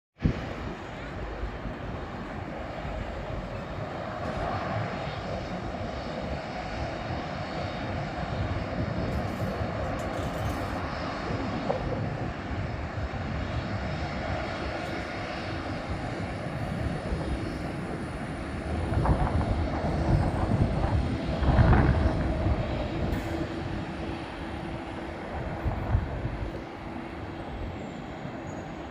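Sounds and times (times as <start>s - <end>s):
jet engines rumbling: 0.2s - 28.9s
faint high whine: 21.8s - 28.9s.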